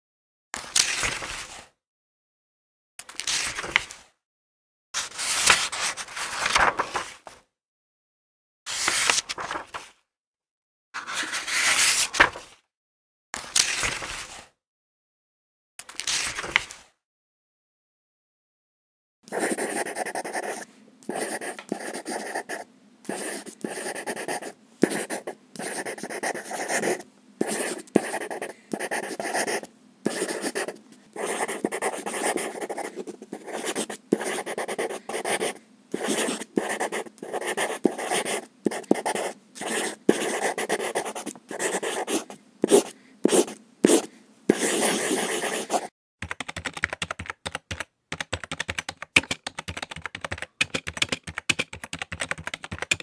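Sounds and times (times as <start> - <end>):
pen scratching while writing: 19.3 - 45.9
computer keyboard typing: 46.2 - 53.0.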